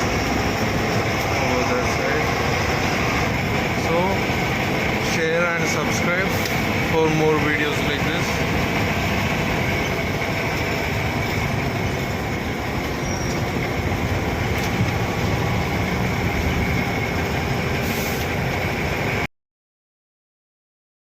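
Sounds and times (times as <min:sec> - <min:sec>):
train wheels rumbling on rails: 0:00.0 - 0:19.3
faint high squeal: 0:13.0 - 0:13.4.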